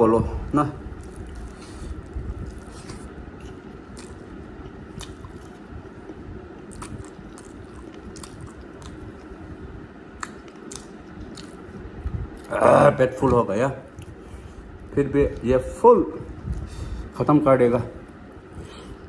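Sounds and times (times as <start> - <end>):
man chewing: 0.8 - 12.9
wet mouth clicks and smacks: 10.2 - 12.2.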